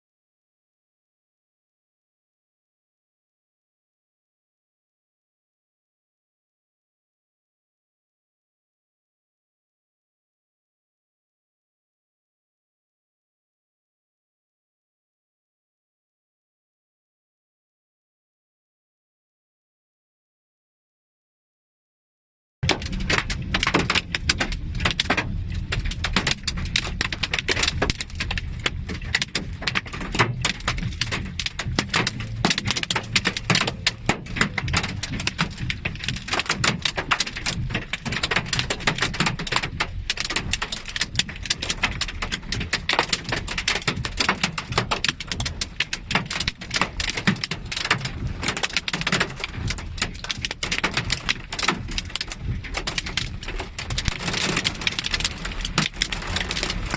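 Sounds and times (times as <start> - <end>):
heavy rain on hard surface: 22.6 - 56.9
low rumble: 22.6 - 56.9.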